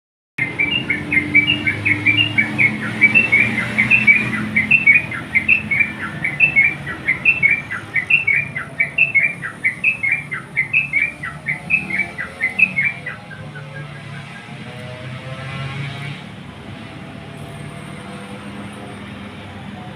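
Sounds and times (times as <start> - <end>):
bulbul singing whistled phrases: 0.4 - 14.6.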